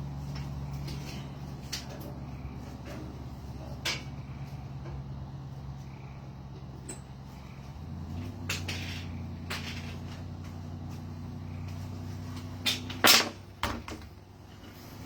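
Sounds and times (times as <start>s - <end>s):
steady low hum: 0.0s - 15.0s
knocks and clunks: 12.3s - 14.2s.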